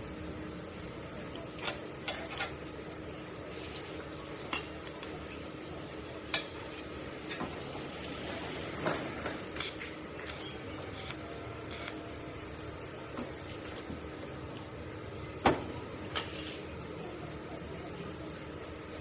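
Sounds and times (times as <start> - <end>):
metal objects clinking: 4.5 - 4.9.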